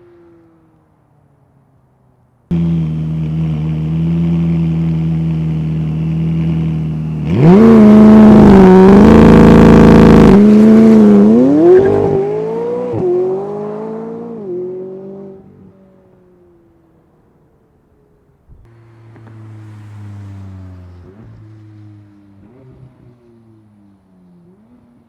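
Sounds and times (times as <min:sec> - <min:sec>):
sports car engine accelerating: 0:02.5 - 0:15.7, 0:18.6 - 0:25.0.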